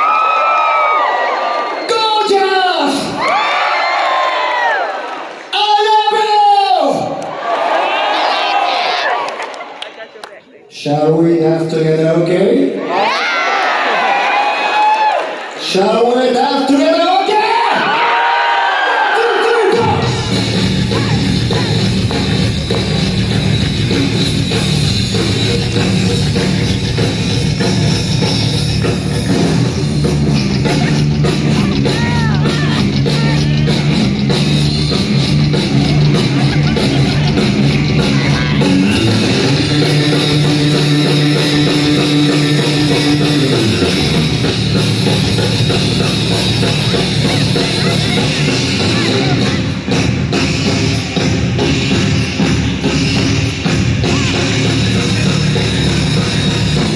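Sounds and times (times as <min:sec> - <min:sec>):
rock band playing: 0:19.3 - 0:56.9.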